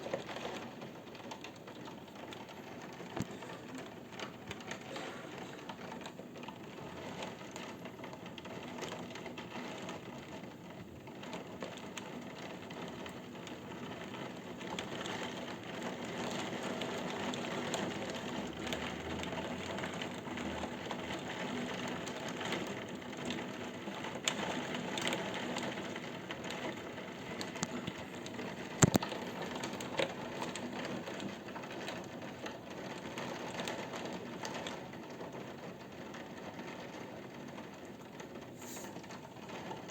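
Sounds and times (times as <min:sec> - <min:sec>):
raindrops ticking nearby: 0:00.0 - 0:39.9
heavy rain hiss: 0:38.6 - 0:39.1.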